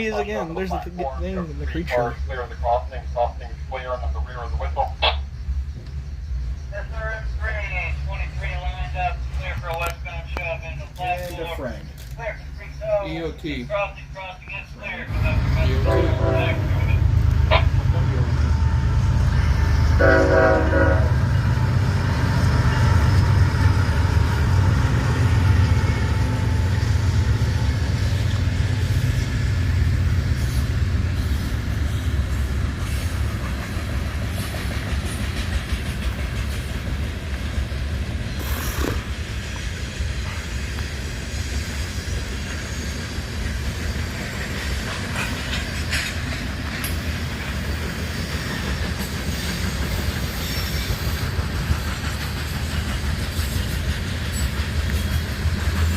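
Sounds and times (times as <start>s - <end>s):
freight train rumbling: 0.0s - 55.9s
locomotive horn blast: 15.1s - 19.0s, 19.8s - 21.8s
wheels clicking over rail joints: 43.5s - 55.9s.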